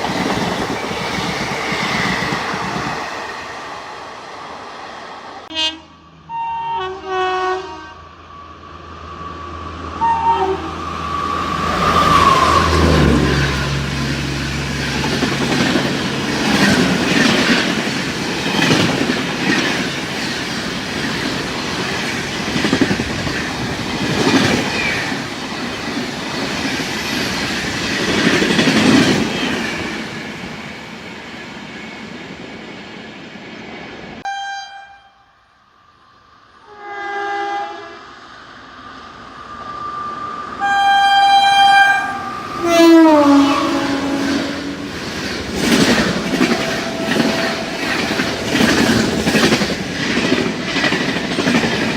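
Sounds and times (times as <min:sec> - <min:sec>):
train horn: 0:05.5 - 0:08.2, 0:10.0 - 0:13.9, 0:34.2 - 0:35.4, 0:36.6 - 0:38.1, 0:40.6 - 0:45.0, 0:45.8 - 0:48.4
train wheels clattering over rails: 0:14.4 - 0:30.2, 0:44.0 - 0:51.9.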